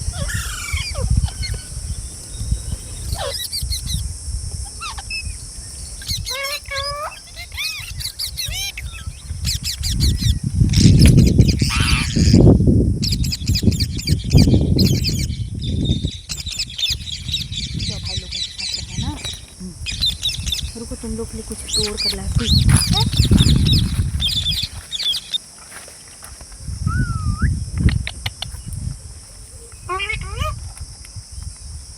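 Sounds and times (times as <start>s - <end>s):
parrots squawking and chirping: 0.0s - 1.8s, 3.0s - 4.0s, 4.8s - 5.3s, 6.0s - 12.5s, 16.4s - 25.4s, 29.6s - 30.6s
rapid high-pitched chattering: 17.8s - 25.4s.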